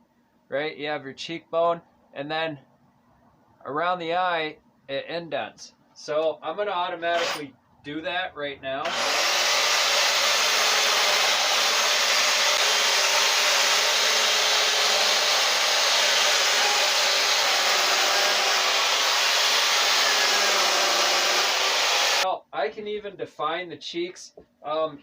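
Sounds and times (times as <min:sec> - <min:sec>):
chainsaw cutting into log: 0:07.2 - 0:07.4, 0:08.8 - 0:22.2.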